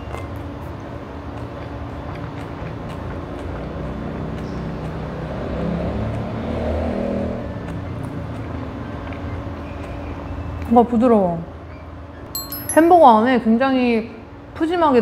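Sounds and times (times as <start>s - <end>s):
close chewing of food: 0.0s - 10.1s.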